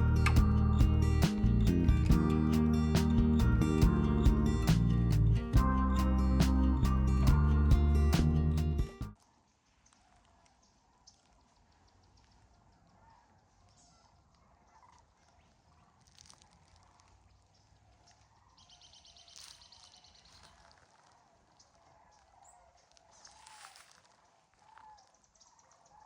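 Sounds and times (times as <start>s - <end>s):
low steady hum: 0.0s - 9.1s
wild birds chirping and whistling: 17.3s - 26.0s.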